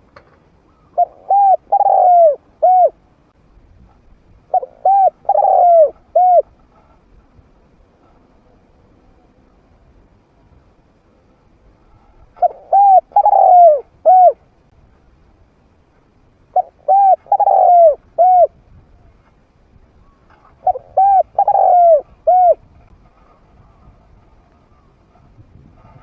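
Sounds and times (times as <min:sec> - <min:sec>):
dove cooing: 0:00.7 - 0:03.0, 0:04.5 - 0:06.6, 0:12.4 - 0:14.4, 0:16.5 - 0:18.6, 0:20.0 - 0:22.7.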